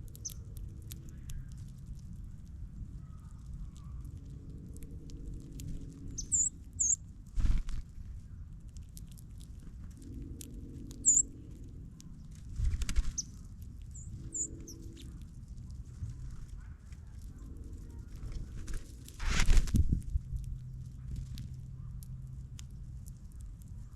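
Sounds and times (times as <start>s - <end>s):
high bird chip calls: 0.0s - 1.6s, 6.1s - 7.0s, 11.0s - 11.4s, 13.0s - 15.1s.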